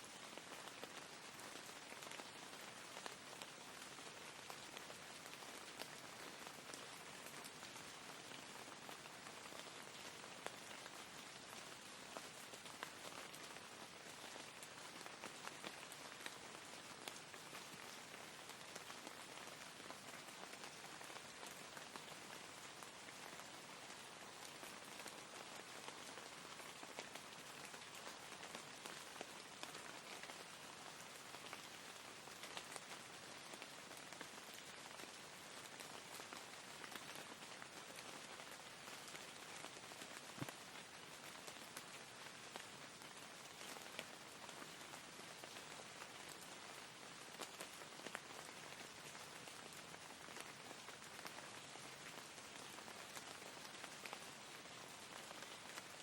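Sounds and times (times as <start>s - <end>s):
soft rain patter: 0.0s - 56.0s
raindrop ticks: 35.7s - 41.9s.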